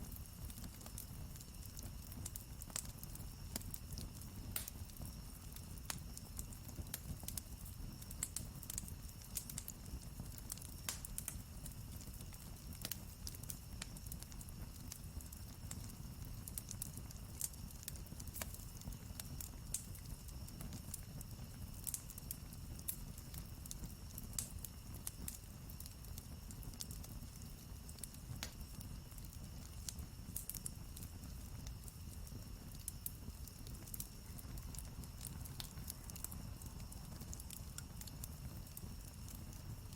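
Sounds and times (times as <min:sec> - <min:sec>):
campfire crackling: 0:00.0 - 0:39.9
sharp pops of fire: 0:00.0 - 0:39.9.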